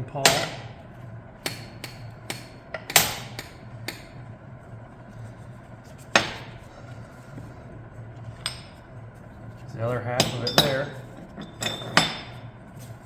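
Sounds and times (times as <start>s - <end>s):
metal parts knocking and clanking: 10.1s - 12.4s.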